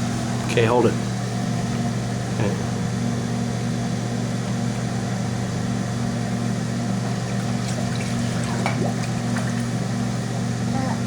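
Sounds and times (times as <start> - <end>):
low machine hum: 0.0 - 11.0
faint water splashes: 7.0 - 9.9.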